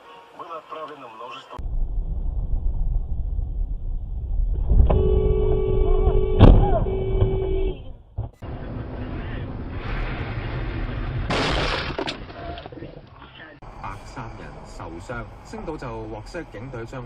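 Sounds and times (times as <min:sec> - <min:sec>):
vehicle road rumble: 0:01.6 - 0:17.0
car horn held: 0:04.8 - 0:08.0
loud crash impact: 0:09.7 - 0:12.3.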